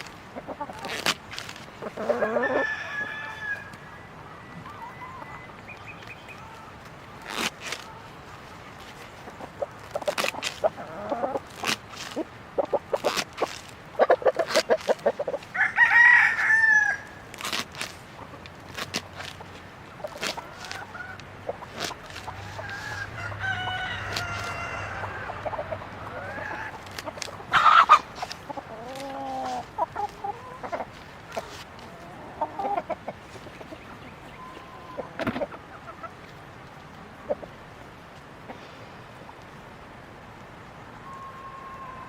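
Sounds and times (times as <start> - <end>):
hens clucking: 0.0 - 3.4, 4.6 - 37.9
rooster crowing: 2.2 - 3.7, 15.5 - 17.2, 22.4 - 25.4.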